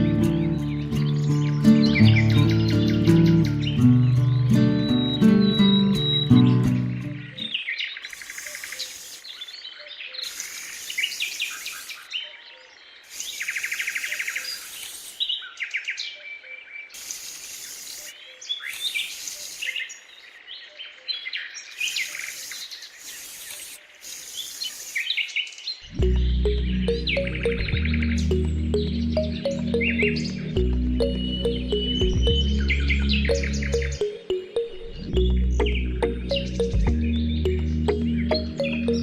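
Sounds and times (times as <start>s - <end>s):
birds chirping and singing: 0.0s - 17.0s, 17.7s - 23.8s, 24.4s - 39.0s
bursts of high hiss: 8.1s - 9.5s, 10.2s - 12.1s, 13.0s - 15.3s, 17.0s - 20.0s, 21.7s - 25.4s.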